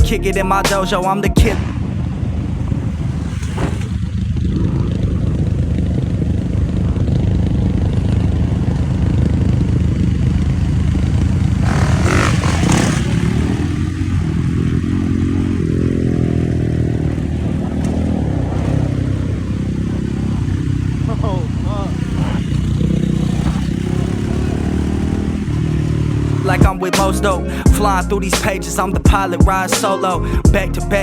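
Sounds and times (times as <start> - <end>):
dirt bike engine revving: 0.0 - 31.0
rush of noise: 1.4 - 15.6.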